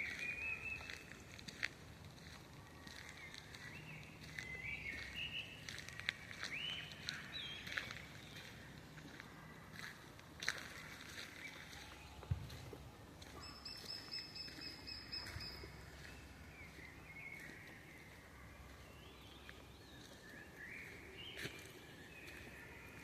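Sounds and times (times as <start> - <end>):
high bird trill: 13.4 - 16.2
wavering bird chirps: 13.4 - 19.2.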